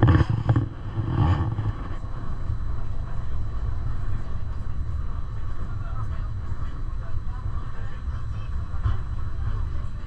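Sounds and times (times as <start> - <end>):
electric train rumbling: 0.0 - 4.2.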